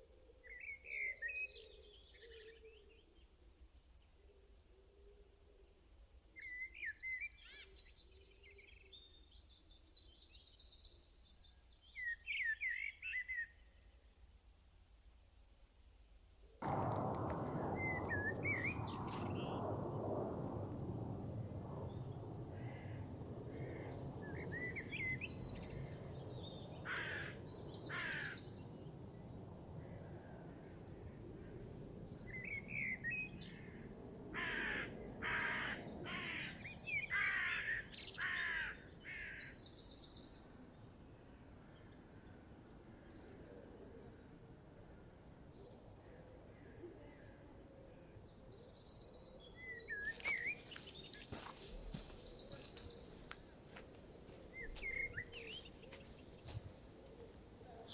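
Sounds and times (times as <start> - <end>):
steady low rushing noise: 16.6 - 36.0
small birds chirping: 23.5 - 29.9, 46.7 - 57.9
crows cawing: 26.8 - 28.5, 33.6 - 39.5.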